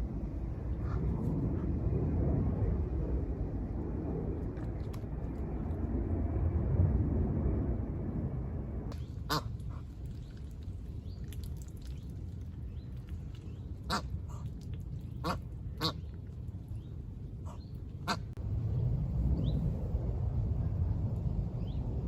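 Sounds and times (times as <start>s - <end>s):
steady low rumble: 0.0s - 22.0s
ducks quacking: 9.2s - 9.8s, 17.5s - 18.3s.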